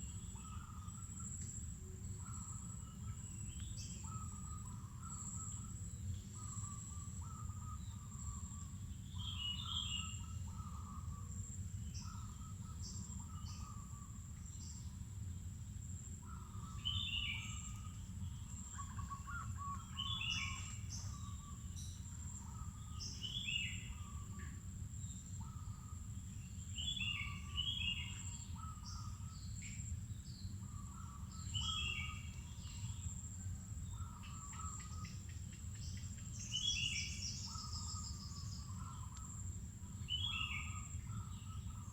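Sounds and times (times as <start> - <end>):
insect high-pitched whine: 0.0 - 41.9
birds calling: 30.5 - 33.1, 33.9 - 41.9.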